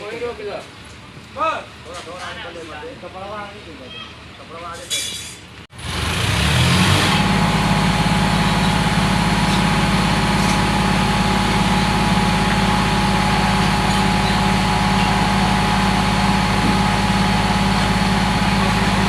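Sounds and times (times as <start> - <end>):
vehicle engine running steadily: 5.7 - 19.0.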